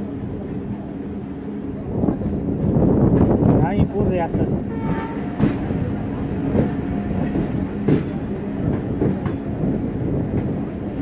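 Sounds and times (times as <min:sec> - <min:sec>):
train wheel and rail rumble: 0:00.0 - 0:11.0
clack over rail joint: 0:02.6 - 0:03.6, 0:04.3 - 0:05.8, 0:06.5 - 0:09.5.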